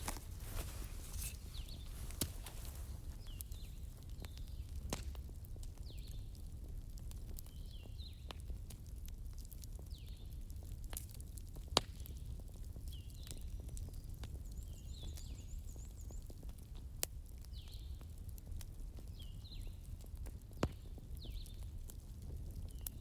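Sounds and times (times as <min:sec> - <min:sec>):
campfire crackling and popping: 0:00.0 - 0:12.5.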